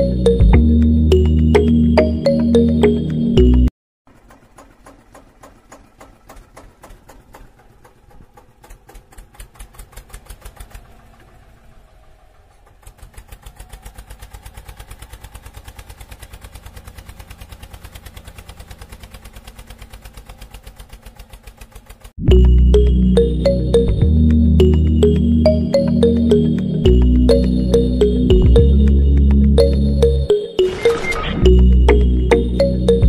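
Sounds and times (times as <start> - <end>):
tractor engine chugging: 4.1 - 30.3.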